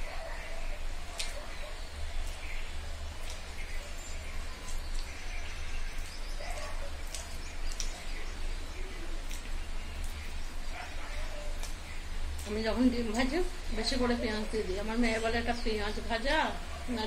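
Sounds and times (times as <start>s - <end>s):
person chewing with wet smacks: 1.0s - 13.4s.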